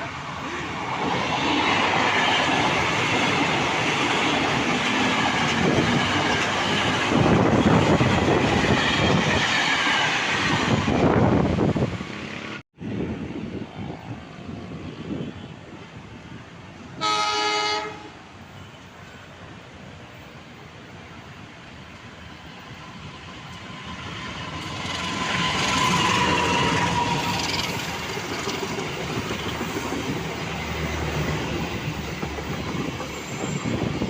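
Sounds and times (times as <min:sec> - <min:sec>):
train rumble and wheel clatter: 0:00.0 - 0:34.0
train horn: 0:17.0 - 0:18.7.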